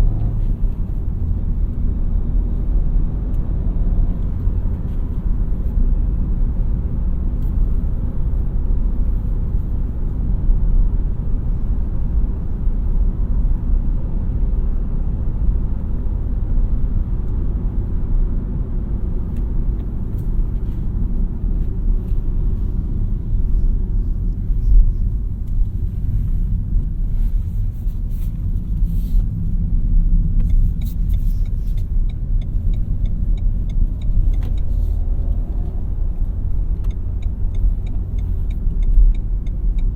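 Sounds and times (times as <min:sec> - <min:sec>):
car engine driving: 0:00.0 - 0:39.9
road rumble: 0:00.0 - 0:39.9
faint ticks: 0:30.4 - 0:35.8, 0:36.7 - 0:39.9.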